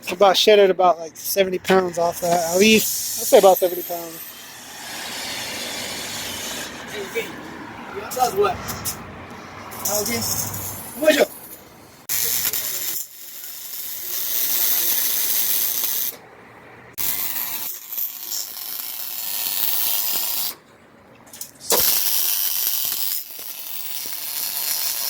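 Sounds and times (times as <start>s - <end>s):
pneumatic tools hissing and whirring: 2.2s - 7.0s, 21.7s - 25.0s.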